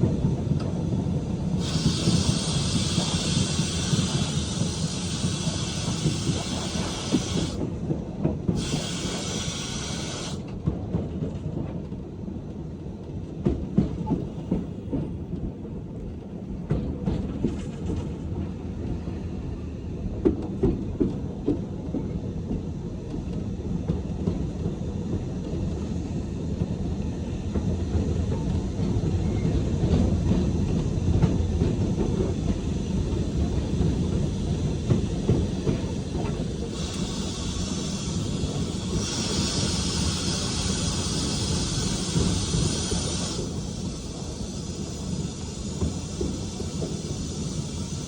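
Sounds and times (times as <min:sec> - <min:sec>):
loud steam hiss: 0:00.0 - 0:07.8, 0:08.5 - 0:10.5, 0:27.2 - 0:48.0
train wheels rumbling: 0:00.0 - 0:48.0.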